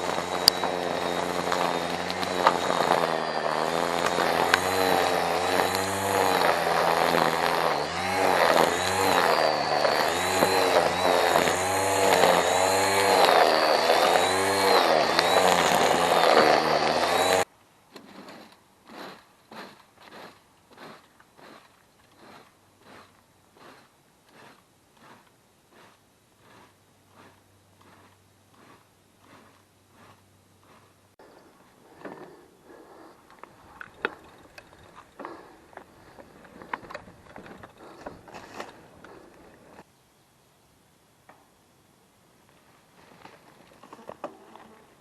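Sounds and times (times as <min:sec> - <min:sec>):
petrol yard tool engine: 0:00.0 - 0:39.8
faint rhythmic strokes: 0:18.0 - 0:39.9.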